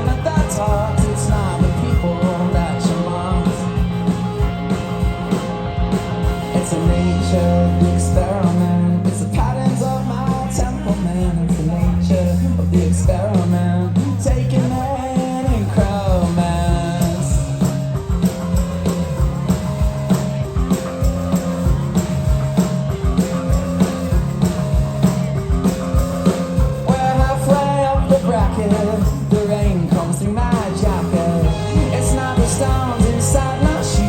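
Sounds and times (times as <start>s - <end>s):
person singing: 0.0s - 4.1s, 6.4s - 17.9s, 26.3s - 34.0s
rock band playing: 0.0s - 34.0s.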